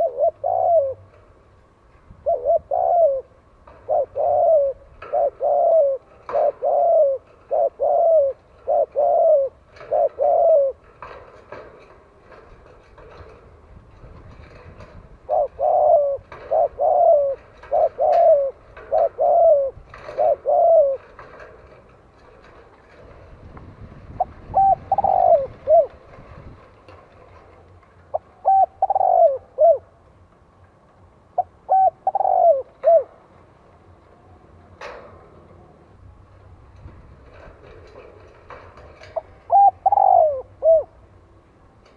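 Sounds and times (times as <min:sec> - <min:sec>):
dove cooing: 0:00.0 - 0:01.4, 0:02.2 - 0:13.4, 0:14.4 - 0:21.8, 0:24.1 - 0:26.1, 0:28.1 - 0:30.0, 0:31.4 - 0:33.3, 0:37.3 - 0:41.1.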